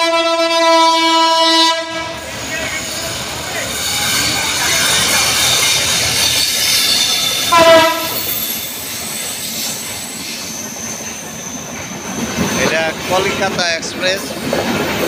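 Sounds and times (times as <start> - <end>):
train horn blast: 0.0 - 2.3, 7.5 - 8.3
train wheels squealing on rails: 2.1 - 15.0.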